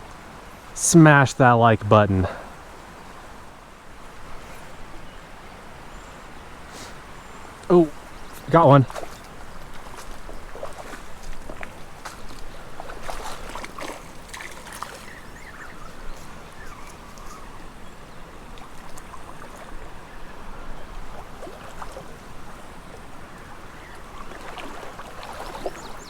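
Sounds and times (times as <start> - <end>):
creek trickling: 0.0 - 26.0
short sharp splashes: 8.4 - 15.2, 24.2 - 26.0.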